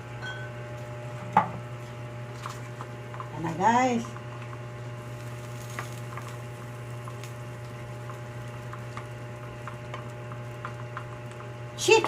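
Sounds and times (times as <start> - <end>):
food simmering with pops: 1.6 - 12.0.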